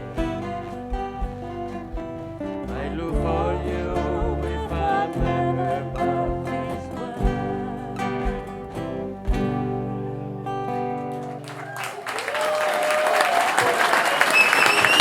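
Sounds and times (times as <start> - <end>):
steady low beat: 0.0 - 10.7
acoustic guitar strumming: 0.0 - 11.5.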